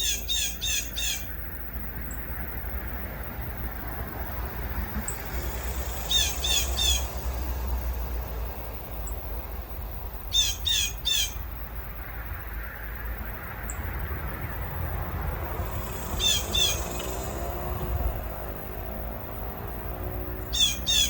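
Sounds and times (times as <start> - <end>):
bird singing whistled notes: 6.0 - 7.2, 15.8 - 17.2, 20.5 - 21.0
faint high bird chips: 15.7 - 17.4.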